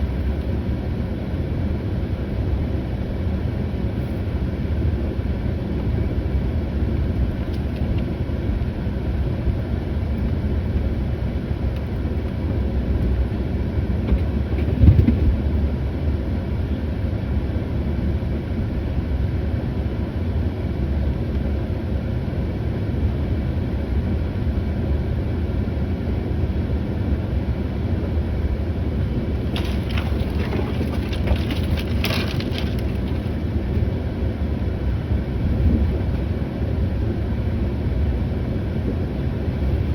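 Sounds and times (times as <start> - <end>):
engine rumbling: 24.1 - 39.9
clattering: 29.4 - 33.4.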